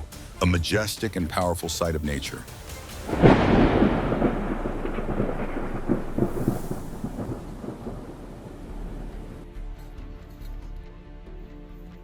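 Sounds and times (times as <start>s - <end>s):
thunderclap with rumble: 3.1s - 9.4s.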